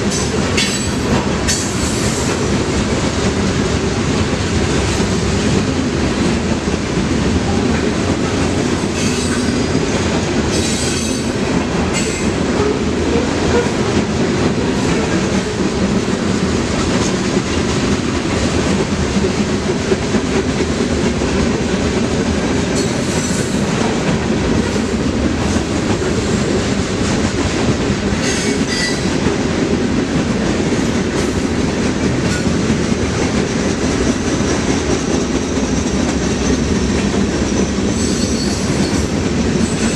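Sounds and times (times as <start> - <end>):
freight train wheels rumbling: 0.0 - 39.9
train wheel squeals: 8.9 - 9.9, 10.5 - 11.4, 12.0 - 12.3, 28.2 - 29.1, 34.5 - 36.8, 37.4 - 39.9.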